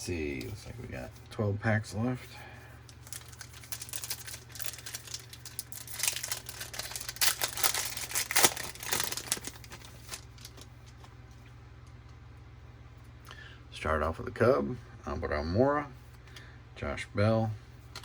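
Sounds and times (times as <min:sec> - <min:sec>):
foil wrapper tearing and crinkling: 0:02.9 - 0:11.1.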